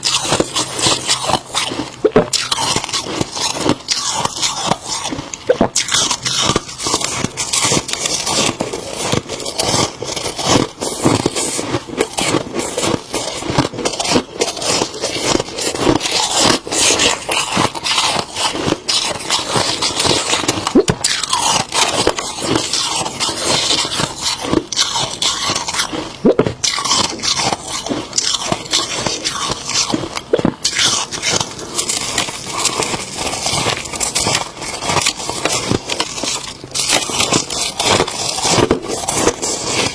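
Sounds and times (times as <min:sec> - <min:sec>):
frost being chewed: 0:00.0 - 0:39.9.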